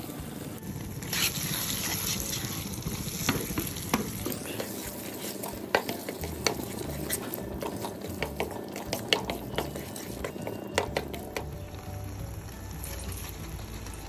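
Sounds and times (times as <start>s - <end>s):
low sizzle: 0.0s - 14.0s
spatula scraping a pan: 1.1s - 11.5s.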